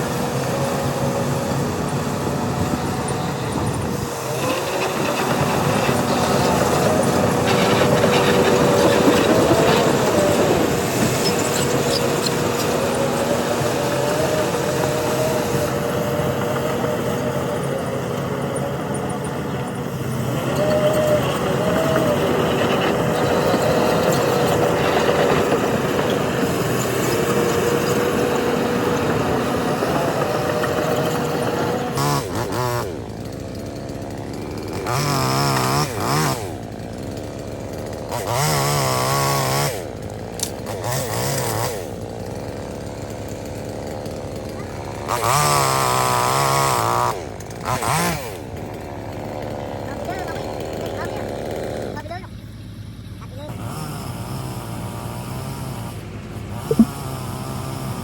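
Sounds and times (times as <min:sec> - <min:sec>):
engine whine: 0:00.0 - 0:33.7, 0:56.7 - 0:57.0
engines revving: 0:00.0 - 0:36.6, 0:53.5 - 0:58.0
heavy machine diesel engines: 0:00.0 - 0:58.0.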